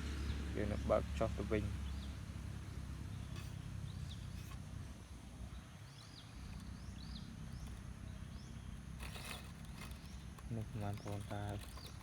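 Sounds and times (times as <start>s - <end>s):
small bird chirping: 5.4s - 12.0s.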